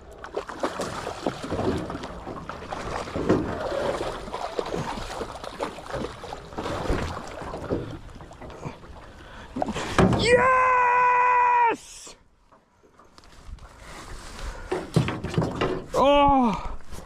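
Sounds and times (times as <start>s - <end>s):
water sloshing around boat: 0.0s - 10.6s.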